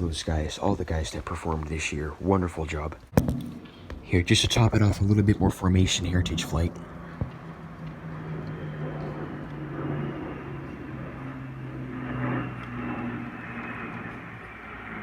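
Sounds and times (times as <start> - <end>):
high jet whine: 3.1 - 15.0
aircraft engine drone: 3.2 - 15.0.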